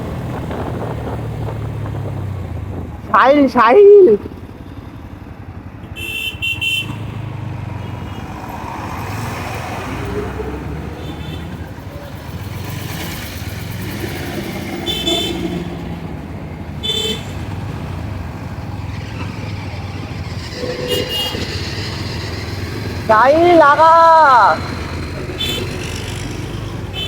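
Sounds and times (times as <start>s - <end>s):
motorcycle engine and road hum: 0.0s - 27.0s
short horn beeps: 20.6s - 21.9s.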